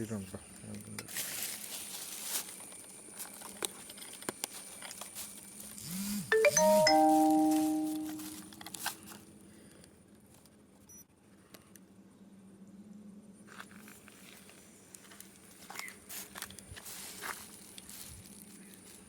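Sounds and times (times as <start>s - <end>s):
chime-like sound effect: 6.3s - 8.5s.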